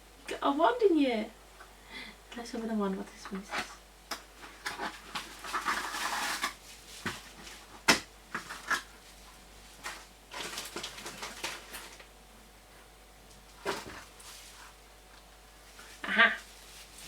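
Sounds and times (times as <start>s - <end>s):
paper and cardboard rustling: 3.2s - 12.1s, 13.4s - 14.8s.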